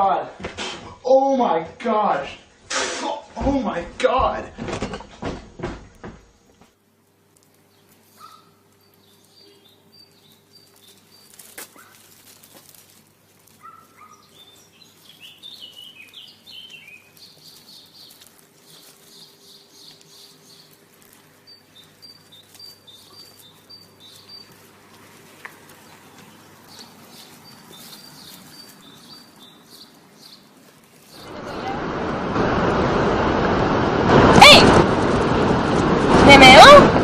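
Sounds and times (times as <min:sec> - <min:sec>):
small birds chirping: 0:07.1 - 0:31.6.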